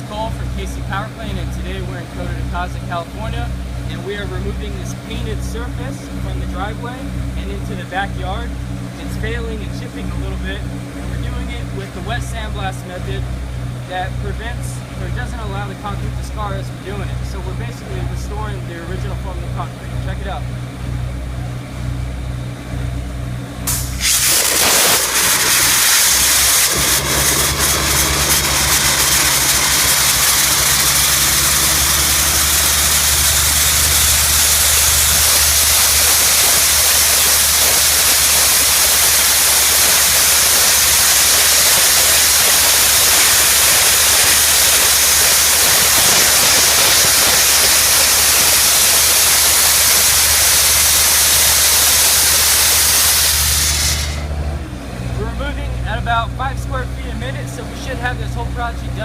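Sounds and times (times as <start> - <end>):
engine drone: 0.0 - 59.0
abrasive blaster spraying hiss: 23.7 - 54.3.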